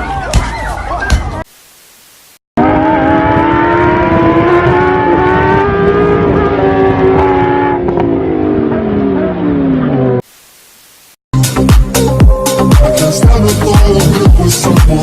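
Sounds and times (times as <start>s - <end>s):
car engine at high revs: 2.6s - 10.2s.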